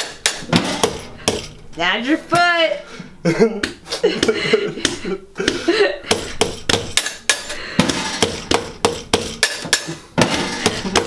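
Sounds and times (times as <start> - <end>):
fast sharp knocks: 4.2 - 11.0.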